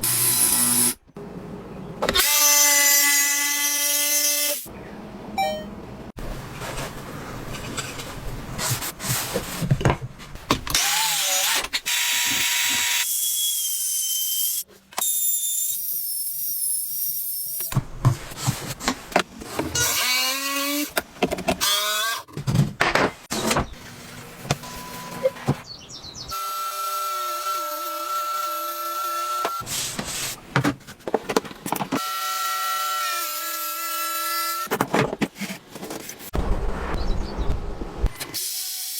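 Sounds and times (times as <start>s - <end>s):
drill running: 0.0s - 1.0s.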